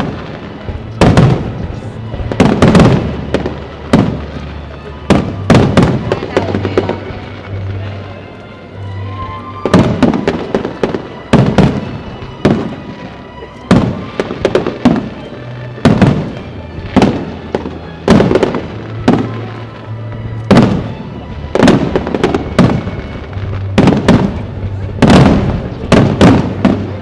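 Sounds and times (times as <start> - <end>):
fireworks bursting with rumbling echo: 0.0 - 27.0.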